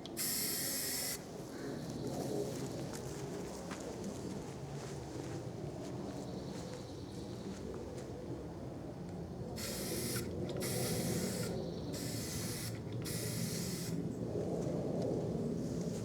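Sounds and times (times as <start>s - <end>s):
aerosol spray can spraying: 0.2s - 1.2s, 9.6s - 14.0s.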